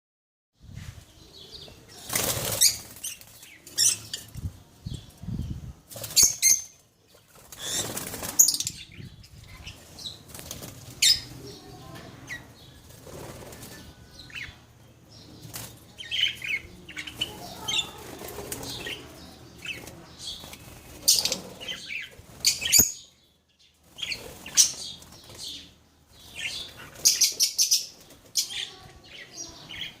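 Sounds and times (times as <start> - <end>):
birds chirping: 0.6 - 30.0
birds flapping wings: 2.0 - 3.5, 7.3 - 8.6, 10.2 - 11.3, 12.9 - 13.9, 17.5 - 19.1.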